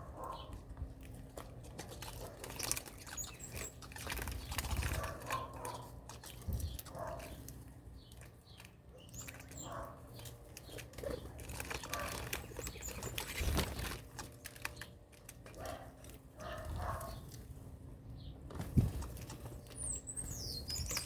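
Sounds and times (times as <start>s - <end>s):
bird wing flutters: 11.6s - 14.0s, 18.5s - 19.5s.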